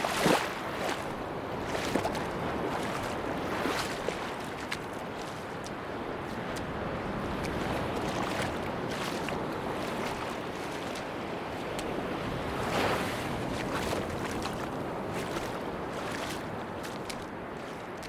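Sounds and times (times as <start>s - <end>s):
sea waves washing on beach: 0.0s - 18.0s.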